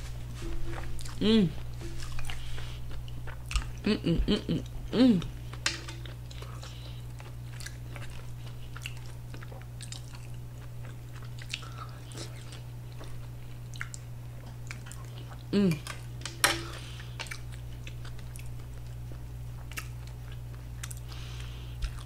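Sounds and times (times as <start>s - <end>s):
low electrical hum: 0.0s - 22.0s
chewing with mouth clicks: 0.4s - 16.1s, 16.7s - 22.0s
person humming mm: 0.7s - 1.8s, 3.8s - 5.4s, 15.5s - 16.0s.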